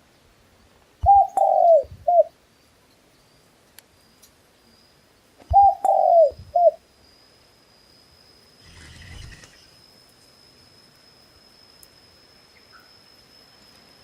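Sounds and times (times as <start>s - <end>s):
dove cooing: 1.0s - 2.3s, 5.5s - 6.8s.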